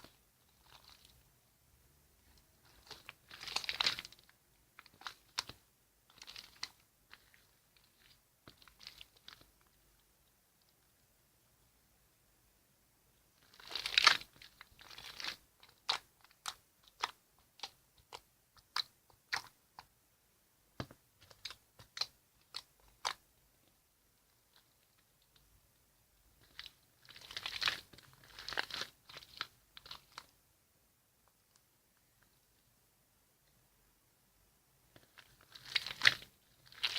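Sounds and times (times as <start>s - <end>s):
slime squishing: 0.0s - 1.3s, 2.2s - 10.0s, 13.4s - 20.0s, 20.8s - 23.4s, 26.3s - 30.4s, 34.9s - 36.9s.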